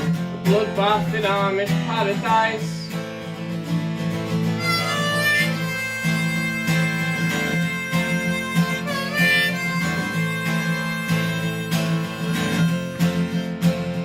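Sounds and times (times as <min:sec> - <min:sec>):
strummed acoustic guitar: 0:00.0 - 0:14.0
harmonica playing melody: 0:04.2 - 0:14.0.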